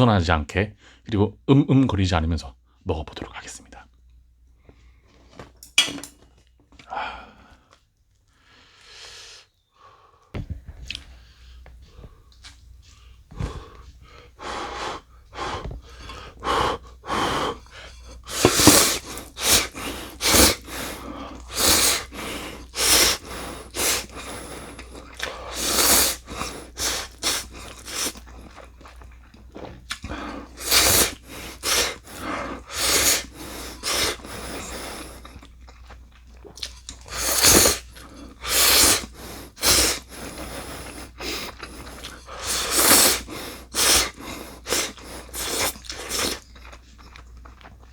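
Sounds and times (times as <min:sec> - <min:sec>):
person breathing: 0:11.0 - 0:28.1, 0:38.4 - 0:45.8
slurping noodles: 0:13.4 - 0:35.5, 0:36.5 - 0:46.6.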